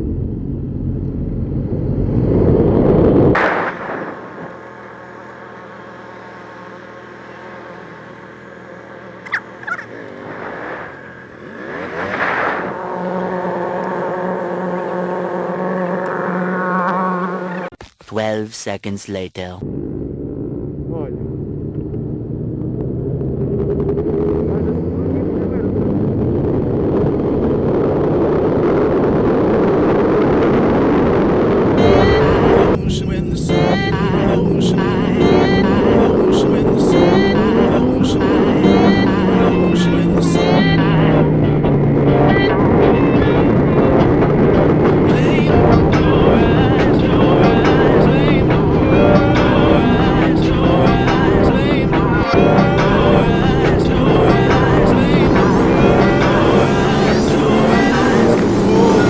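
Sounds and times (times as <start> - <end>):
motor vehicle engine running: 0.0 - 17.7, 19.6 - 59.0
short sharp squeaks: 9.2 - 11.0
wind rush on microphone: 9.3 - 14.7, 25.4 - 52.2.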